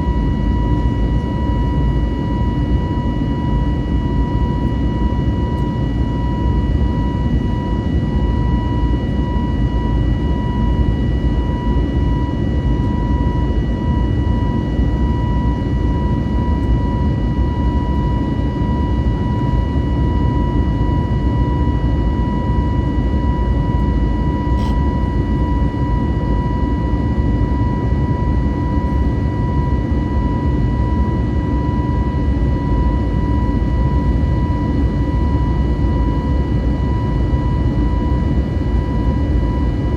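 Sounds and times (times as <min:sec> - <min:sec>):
aircraft cabin rumble and air rush: 0:00.0 - 0:26.3
high engine whine: 0:00.0 - 0:39.9.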